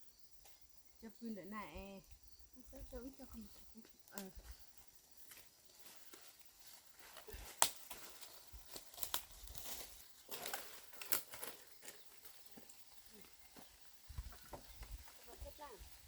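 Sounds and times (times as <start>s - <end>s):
crinkling and clicks of handling: 5.2s - 12.8s.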